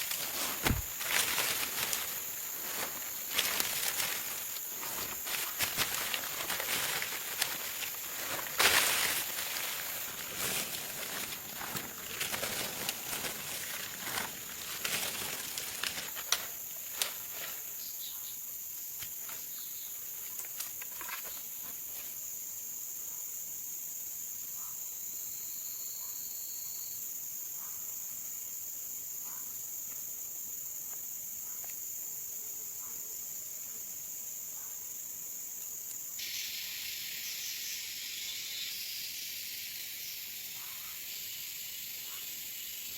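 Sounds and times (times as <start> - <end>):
rustling and handling noises: 0.0 - 17.8, 20.2 - 22.2
high-pitched insect chorus: 0.0 - 42.9.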